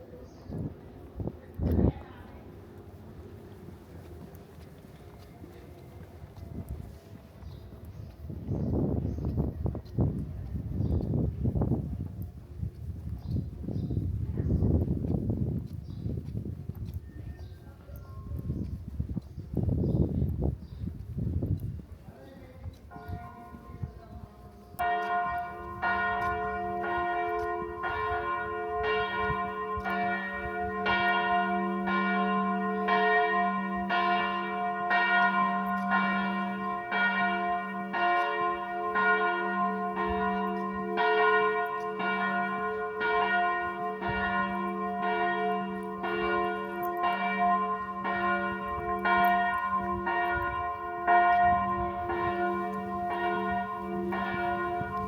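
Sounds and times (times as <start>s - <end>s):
church bell ringing: 22.9s - 24.0s, 24.8s - 55.0s.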